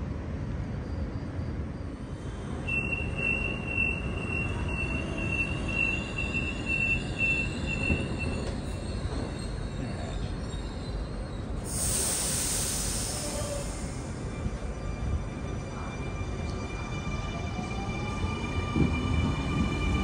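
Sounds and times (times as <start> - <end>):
train low rumble: 0.0 - 20.0.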